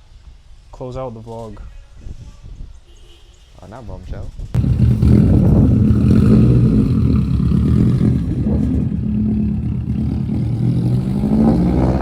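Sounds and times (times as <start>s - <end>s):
car engine running: 4.6s - 11.4s.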